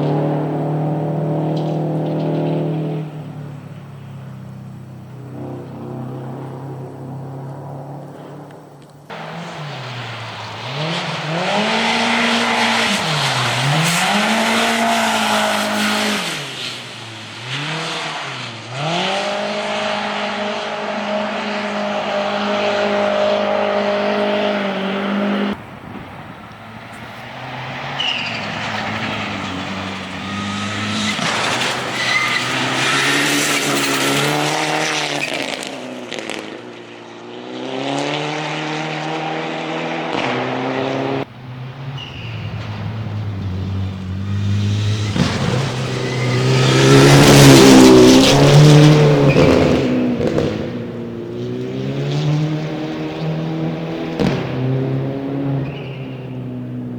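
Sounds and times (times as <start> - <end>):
rally car engines revving: 0.0 - 56.9.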